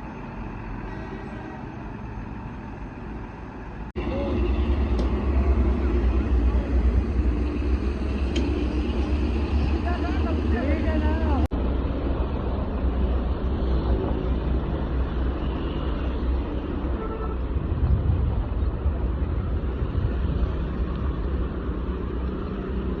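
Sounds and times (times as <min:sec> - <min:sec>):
road noise: 0:00.0 - 0:23.0
diesel truck engine running: 0:01.6 - 0:11.7.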